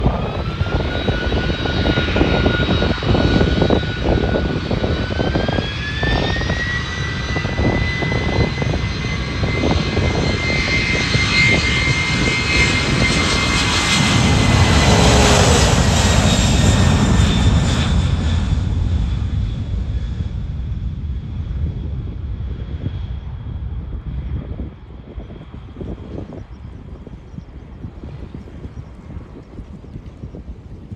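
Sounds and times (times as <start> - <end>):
jet engines spooling up: 0.0 - 23.2.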